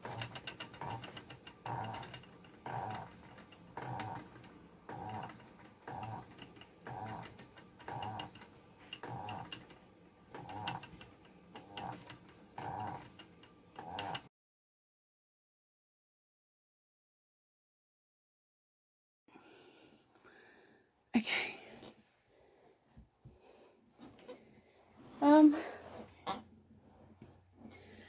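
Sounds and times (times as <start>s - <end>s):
spinning wheel turning with clicks: 0.0s - 14.3s.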